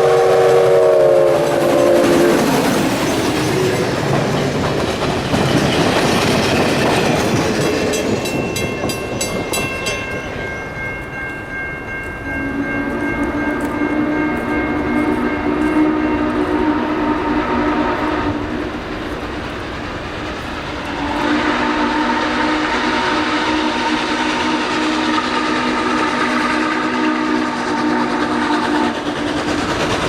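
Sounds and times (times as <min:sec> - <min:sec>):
high train whistle chord: 0:00.0 - 0:03.9, 0:12.1 - 0:18.9, 0:20.9 - 0:29.1
steam train rumbling: 0:00.0 - 0:30.0.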